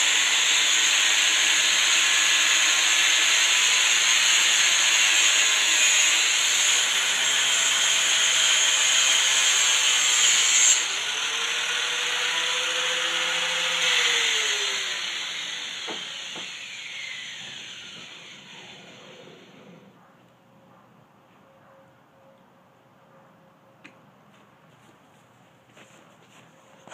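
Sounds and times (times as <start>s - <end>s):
angle grinder grinding: 0.0s - 19.9s
grinder motor spinning down: 10.8s - 19.8s.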